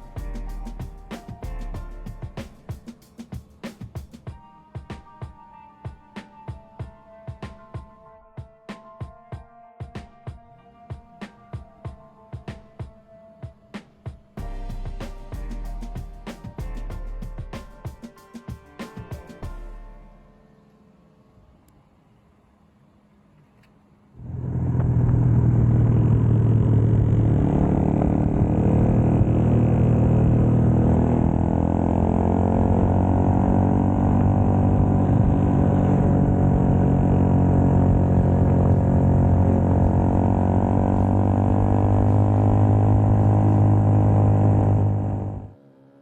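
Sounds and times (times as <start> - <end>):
motorcycle engine running: 14.4 - 18.0, 24.2 - 46.0.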